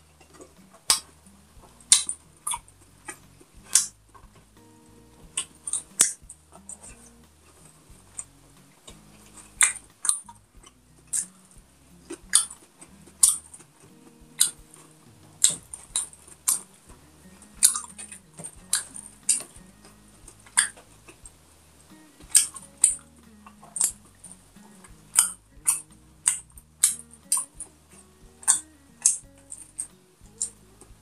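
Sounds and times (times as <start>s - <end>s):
wet mouth clicks while chewing: 12.1s - 13.7s, 22.3s - 24.0s.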